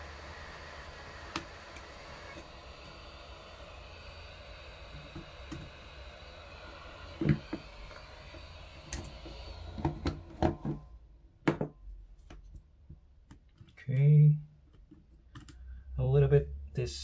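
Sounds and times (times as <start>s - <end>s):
hot-air station hissing: 0.0s - 11.0s.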